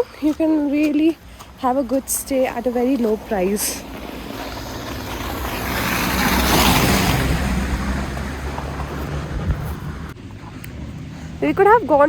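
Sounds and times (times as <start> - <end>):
vehicle driving past: 2.2 - 12.0.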